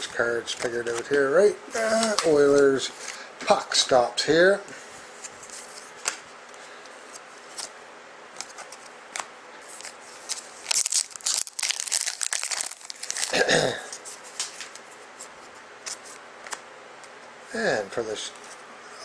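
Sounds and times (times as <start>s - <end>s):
cards handled with clicks: 0.5s - 1.2s
foil wrapper tearing and crinkling: 9.8s - 13.5s.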